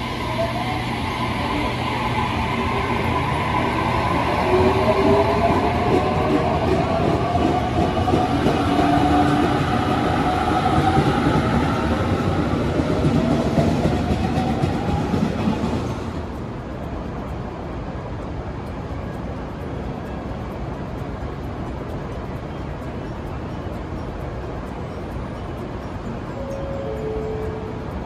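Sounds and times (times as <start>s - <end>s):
train whine rising in pitch: 0.0s - 16.9s, 26.0s - 28.0s
train wheels rumbling on rails: 0.0s - 28.0s.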